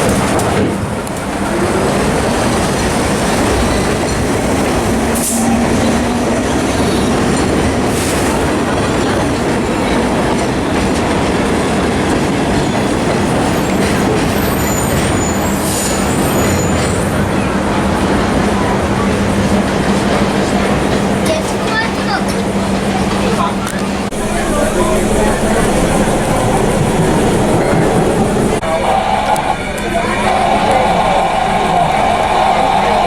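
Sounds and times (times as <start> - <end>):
subway train rumbling on rails: 0.0 - 33.0
high wheel squeal: 12.9 - 17.5.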